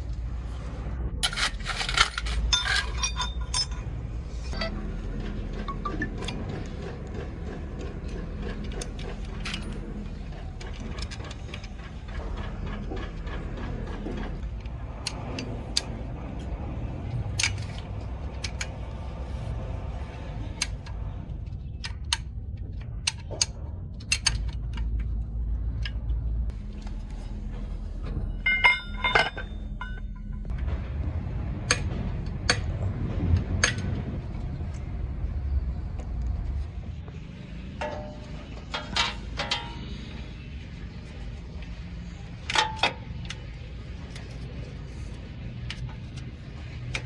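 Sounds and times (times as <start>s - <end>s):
steady low hum: 0.0s - 47.0s
hand tools clinking on metal: 1.2s - 4.7s, 28.4s - 30.4s.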